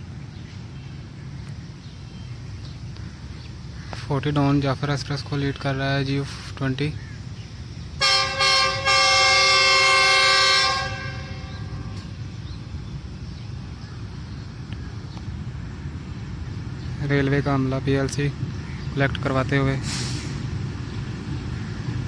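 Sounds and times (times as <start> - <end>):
train rumbling past: 0.0 - 22.0
locomotive horn: 8.0 - 12.3.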